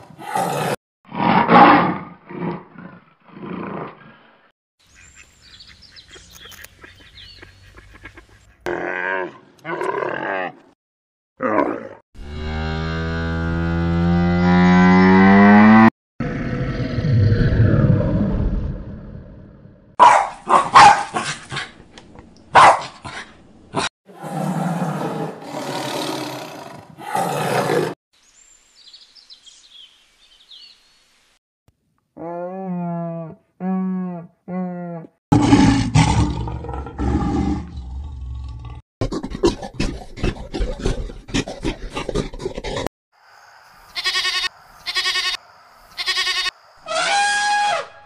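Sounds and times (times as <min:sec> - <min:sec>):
tiger roaring: 0:24.1 - 0:28.0, 0:35.3 - 0:42.9
bear growling: 0:35.0 - 0:42.9
drawn-out animal call: 0:43.9 - 0:45.4, 0:46.0 - 0:47.8
goat bleating: 0:43.9 - 0:45.4, 0:46.0 - 0:46.6.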